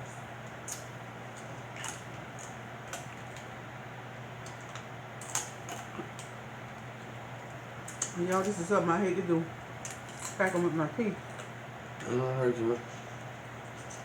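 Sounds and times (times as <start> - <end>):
low steady hum: 0.0 - 14.0
crab shells clicking and crackling: 4.4 - 6.4.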